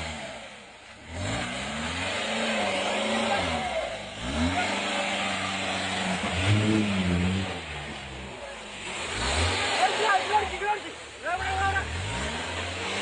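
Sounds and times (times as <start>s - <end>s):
engine revving hard: 0.0s - 13.0s.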